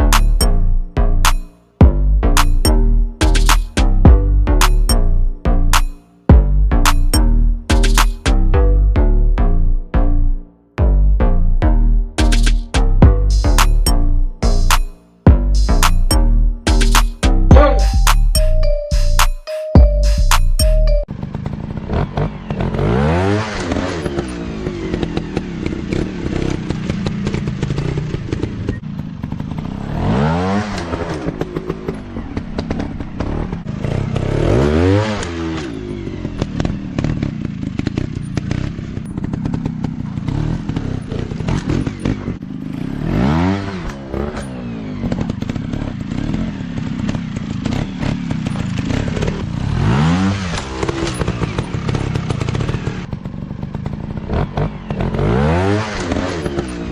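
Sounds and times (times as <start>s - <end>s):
dirt bike engines revving: 20.8s - 56.9s.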